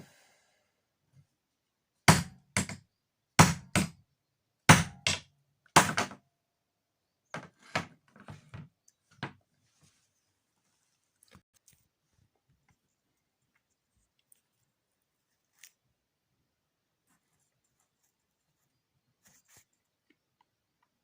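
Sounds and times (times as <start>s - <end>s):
hammer strikes: 2.1s - 2.8s, 3.4s - 4.0s, 4.7s - 6.2s.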